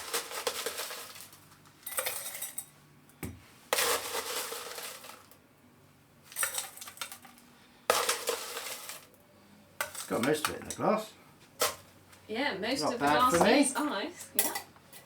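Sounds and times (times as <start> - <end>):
crushed ice clinking in glass: 0.0 - 2.7, 3.7 - 5.4, 6.3 - 9.1.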